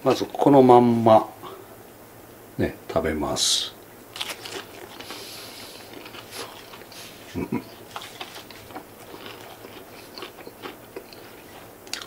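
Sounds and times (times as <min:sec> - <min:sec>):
crunchy chewing: 0:04.1 - 0:12.0.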